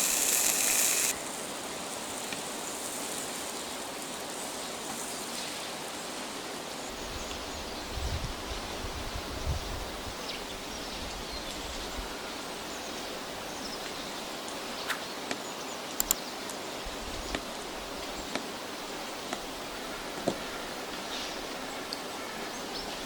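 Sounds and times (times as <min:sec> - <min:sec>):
small sharp clicks: 0:00.0 - 0:01.2, 0:16.0 - 0:16.2
soft steady hiss: 0:00.0 - 0:04.8.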